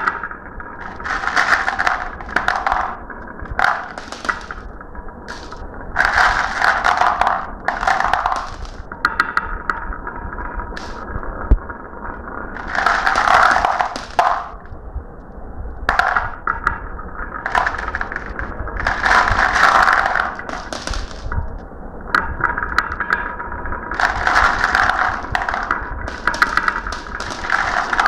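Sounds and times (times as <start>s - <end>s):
marbles clicking and knocking: 0.0s - 4.7s, 5.3s - 9.8s, 10.8s - 11.0s, 12.6s - 14.7s, 15.9s - 16.7s, 17.4s - 21.5s, 24.0s - 28.0s
marbles rolling and rattling: 0.0s - 8.9s, 10.8s - 11.0s, 12.6s - 14.7s, 17.4s - 21.4s, 23.9s - 28.0s.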